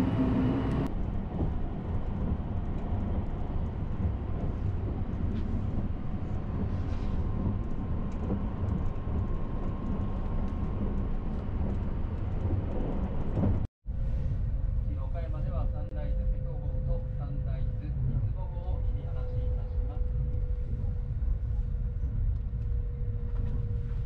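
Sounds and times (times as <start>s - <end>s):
train wheels rumbling on track: 0.0s - 14.3s.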